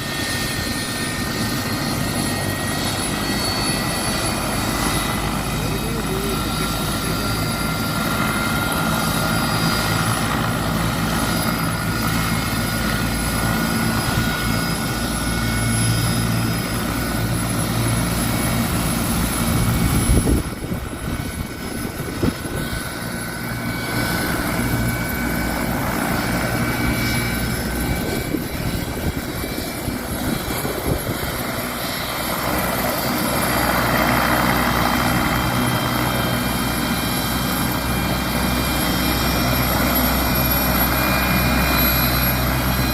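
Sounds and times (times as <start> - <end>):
helicopter turbine and rotor: 0.0 - 42.9.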